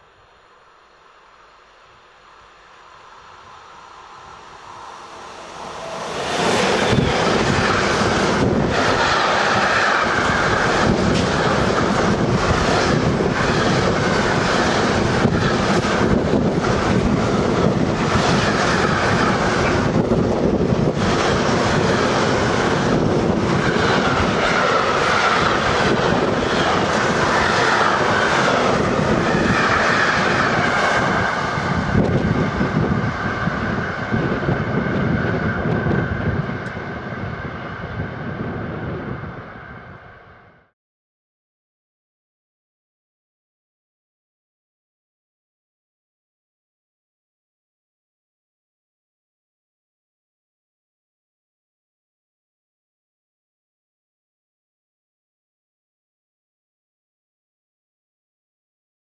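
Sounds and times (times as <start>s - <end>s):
train wheels rushing on rail: 2.5s - 40.6s.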